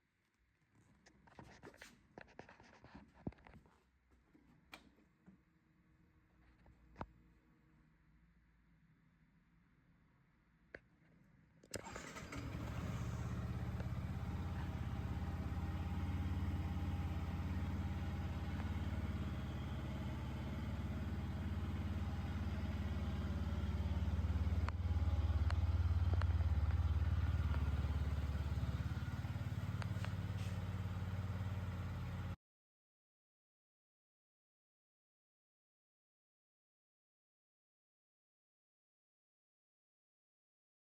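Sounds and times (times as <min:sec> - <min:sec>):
motorcycle engine starting and idling: 0:11.7 - 0:32.4.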